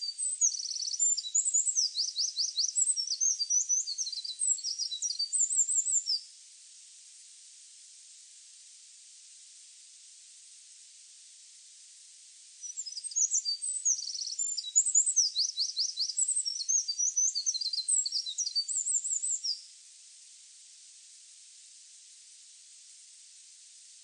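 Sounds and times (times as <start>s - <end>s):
songbird singing: 0.0s - 6.3s, 12.6s - 19.7s
steady high hiss: 0.0s - 24.0s.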